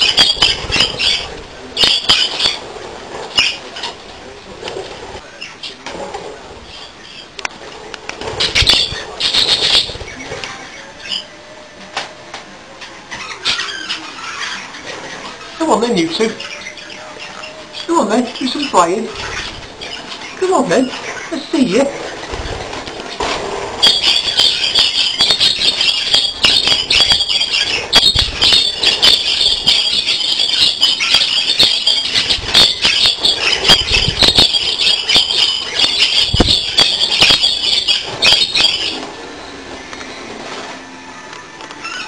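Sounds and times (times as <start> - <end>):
budgerigars chirping: 0.0 - 4.4, 8.3 - 11.4, 13.1 - 39.8
wings flapping: 0.0 - 42.0.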